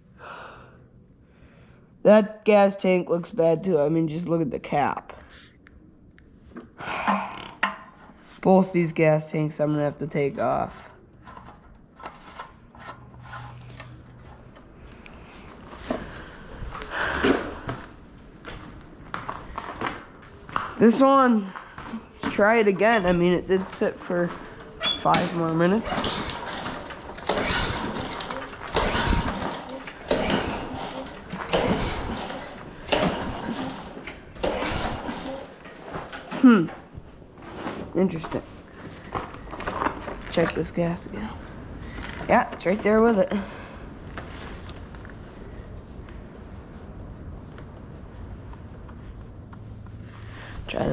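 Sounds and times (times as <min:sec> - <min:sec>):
lawn mower engine cranking: 0:22.3 - 0:36.8
recoil cord pulls: 0:24.4 - 0:36.4.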